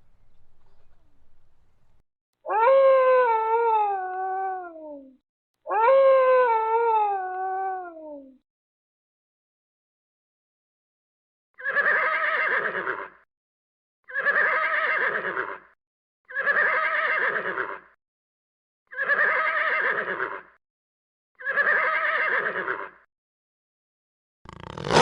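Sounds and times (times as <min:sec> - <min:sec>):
horse whinnying: 0:11.6 - 0:13.2, 0:14.1 - 0:15.7, 0:16.3 - 0:17.9, 0:18.9 - 0:20.5, 0:21.4 - 0:23.0.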